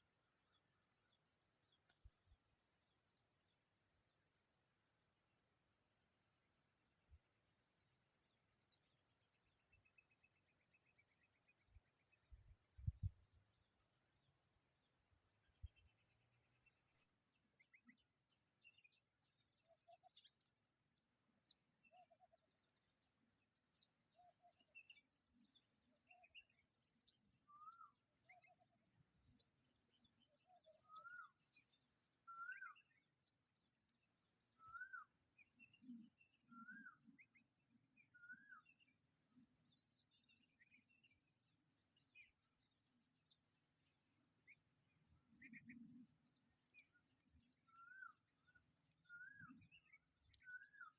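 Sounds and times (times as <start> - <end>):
whistled bird notes: 27.5 - 28.6, 30.0 - 31.6, 32.3 - 33.0, 34.5 - 38.9, 47.6 - 50.9
high-pitched hiss: 40.0 - 48.5.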